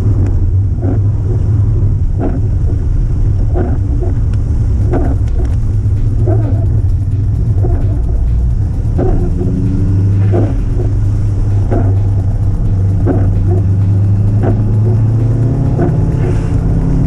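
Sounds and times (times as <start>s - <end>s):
car engine cruising drone: 0.0s - 17.0s
short repeating sound: 4.8s - 17.0s.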